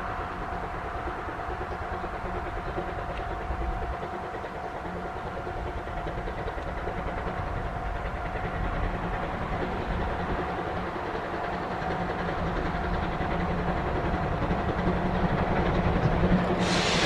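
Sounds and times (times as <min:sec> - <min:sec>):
train rumbling along track: 0:00.0 - 0:17.0.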